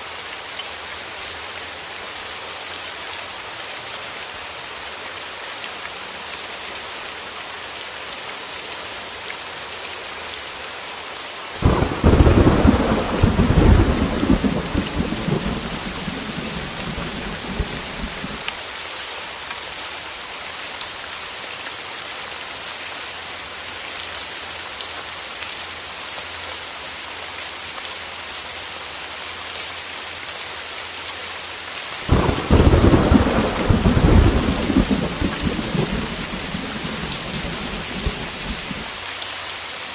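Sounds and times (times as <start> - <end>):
heavy rain falling: 0.0 - 39.9
thunder rumbling: 11.6 - 18.5, 32.1 - 38.9.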